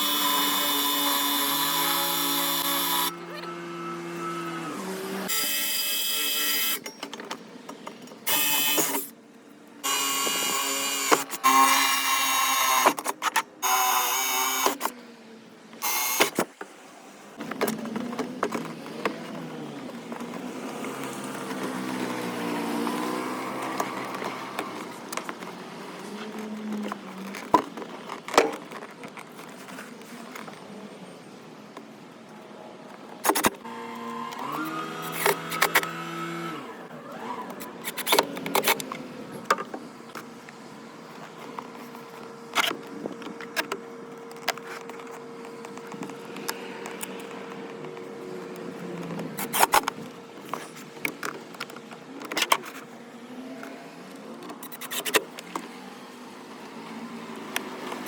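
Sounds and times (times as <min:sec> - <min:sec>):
power tool whining: 0:00.0 - 0:07.0, 0:08.3 - 0:09.1, 0:09.8 - 0:14.9, 0:15.8 - 0:16.5, 0:33.6 - 0:39.8
quiet shifting sounds: 0:14.6 - 0:58.0.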